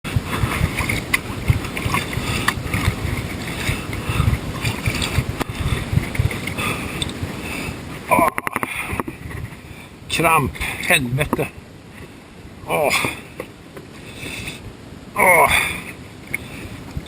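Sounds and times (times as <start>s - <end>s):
paddle splashing water: 0.1s - 9.6s
low uneven rumble: 0.1s - 17.0s.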